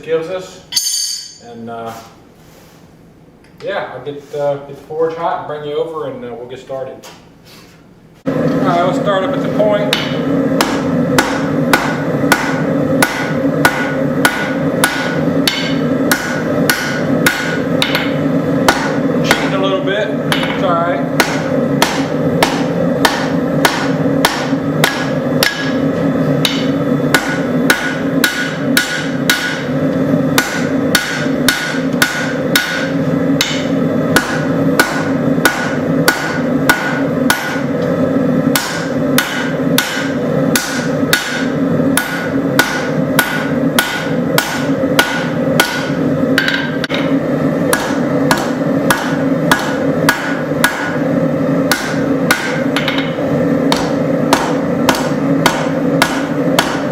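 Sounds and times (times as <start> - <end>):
hammer striking steel on anvil: 0.7 - 1.6, 9.9 - 19.6, 20.2 - 37.8, 38.5 - 56.9.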